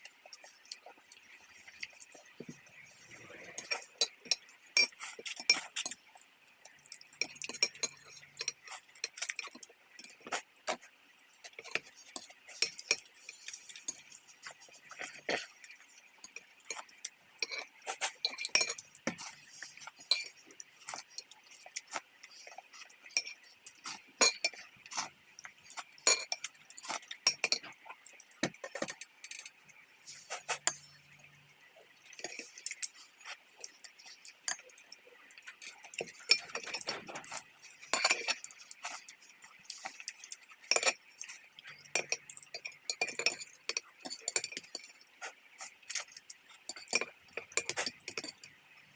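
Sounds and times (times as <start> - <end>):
faint steady hiss: 0.0 - 48.9
utensils clinking against dishes: 1.7 - 6.0, 7.2 - 10.8, 11.4 - 31.1, 32.0 - 48.6.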